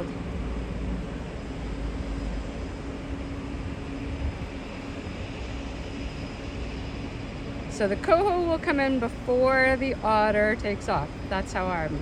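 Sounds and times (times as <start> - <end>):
distant plane engine drone: 0.0 - 12.0.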